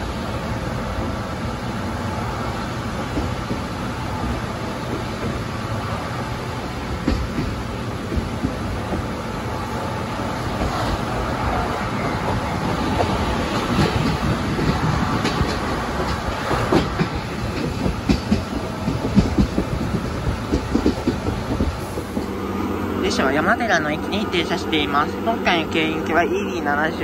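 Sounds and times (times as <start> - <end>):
train rumbling on rails: 0.0 - 27.0
wheels clacking over rail joints: 2.7 - 22.4.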